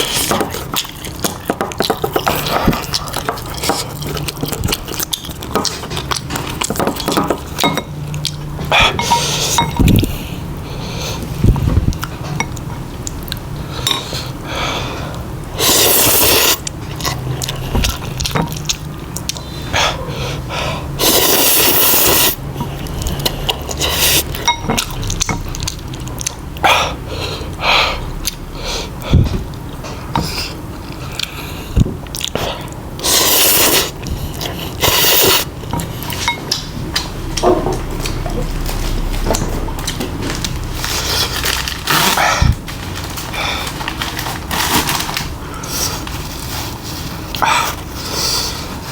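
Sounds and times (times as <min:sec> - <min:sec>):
chewing and mouth smacks: 0:00.4 - 0:08.8.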